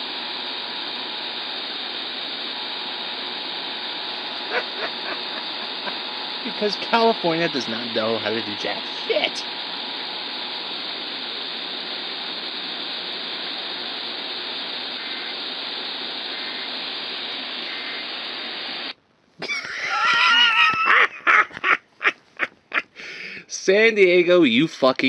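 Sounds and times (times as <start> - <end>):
radio static hiss: 0.0 - 25.0
warbling radio sound: 1.0 - 18.9.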